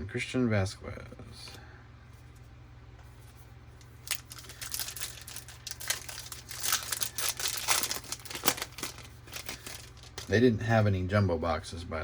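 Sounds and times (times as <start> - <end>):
foil wrapper crinkling and tearing: 3.9 - 10.4.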